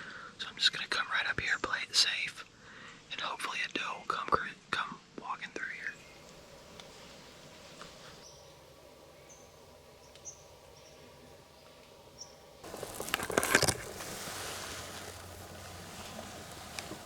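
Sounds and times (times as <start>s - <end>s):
steady hiss: 4.8s - 17.0s
rustling and crackling: 12.6s - 17.0s.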